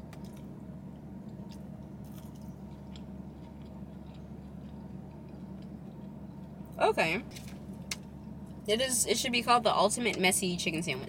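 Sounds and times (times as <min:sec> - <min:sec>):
person chewing fries: 0:00.0 - 0:08.6
steady low hum: 0:00.0 - 0:11.0.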